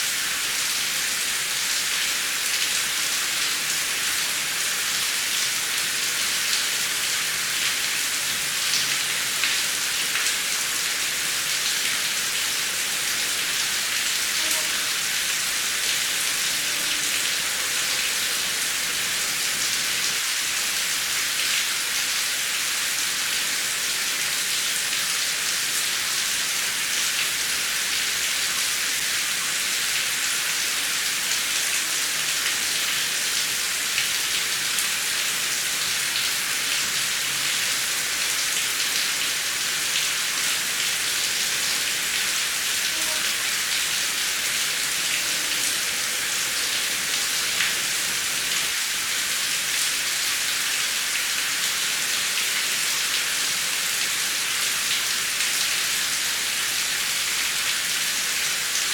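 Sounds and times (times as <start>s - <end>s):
heavy rain hissing: 10.6s - 21.1s, 26.7s - 50.6s.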